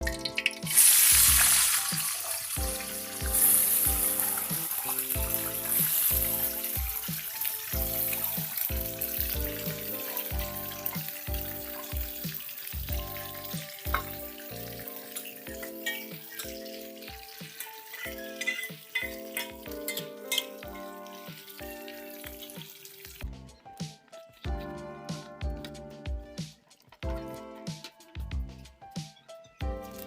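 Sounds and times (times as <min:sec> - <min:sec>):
food sizzling in oil: 0:00.0 - 0:23.2
background music with steady beat: 0:00.0 - 0:30.0.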